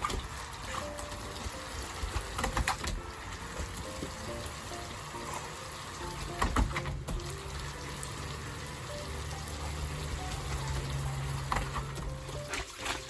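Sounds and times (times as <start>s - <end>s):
light background music: 0.0s - 13.0s
water splashing in paddling pool: 9.9s - 13.0s.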